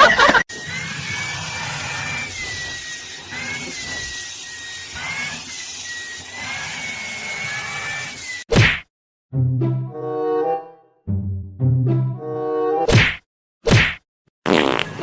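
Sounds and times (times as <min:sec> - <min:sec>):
small electric motor whining: 0:00.5 - 0:08.4.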